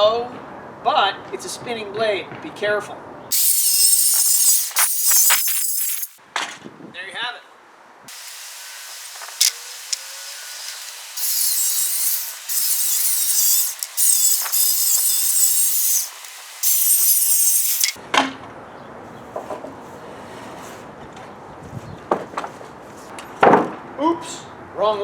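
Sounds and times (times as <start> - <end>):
circular saw cutting wood: 3.3 - 6.2, 8.1 - 18.0.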